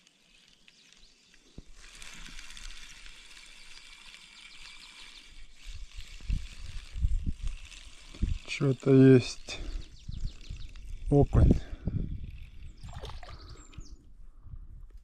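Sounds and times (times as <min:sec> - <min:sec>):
spinning reel ticking: 0:01.8 - 0:12.8.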